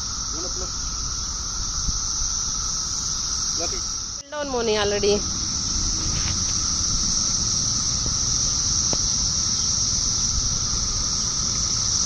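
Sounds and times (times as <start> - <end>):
cicadas buzzing: 0.0 - 12.0
low rumble: 0.0 - 12.0.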